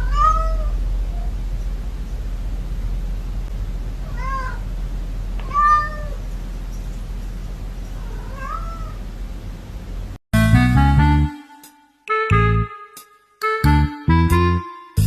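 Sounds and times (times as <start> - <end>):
cat meowing: 0.0 - 1.3, 4.0 - 4.7, 5.4 - 6.2, 8.0 - 9.0
low background hum: 0.0 - 14.6.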